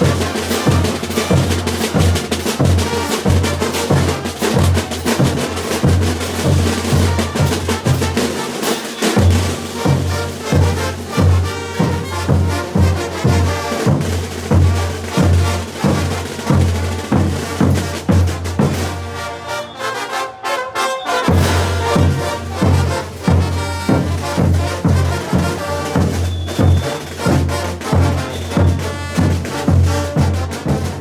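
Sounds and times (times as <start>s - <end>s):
bass drum beat: 0.0s - 8.2s, 21.4s - 31.0s
snare drum: 0.0s - 20.1s, 21.0s - 31.0s.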